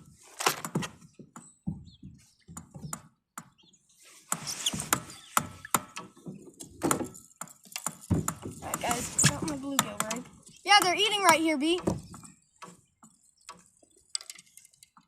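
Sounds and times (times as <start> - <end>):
fishing tackle clicks and knocks: 11.3 - 15.0.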